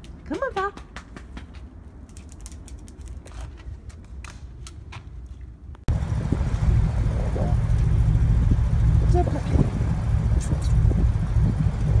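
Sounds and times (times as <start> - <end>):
car engine running: 5.9 - 12.0.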